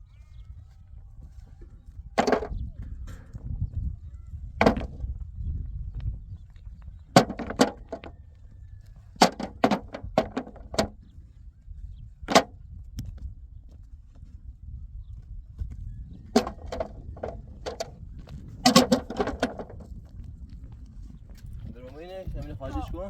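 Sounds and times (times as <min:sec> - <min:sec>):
low wind rumble: 0:00.0 - 0:23.0
sharp knocks: 0:02.2 - 0:02.6, 0:04.6 - 0:05.0, 0:07.2 - 0:08.1, 0:09.2 - 0:11.0, 0:12.3 - 0:12.6, 0:16.4 - 0:17.9.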